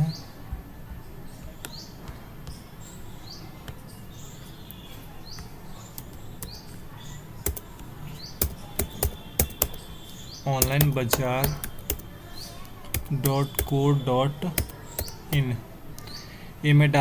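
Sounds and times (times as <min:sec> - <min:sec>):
birds chirping: 0:00.0 - 0:17.0
computer key clicks: 0:07.5 - 0:07.7, 0:08.4 - 0:09.8, 0:10.6 - 0:12.0.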